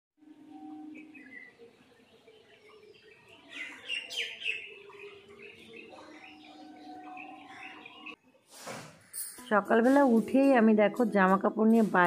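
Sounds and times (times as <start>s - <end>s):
small birds chirping: 0.8s - 8.2s.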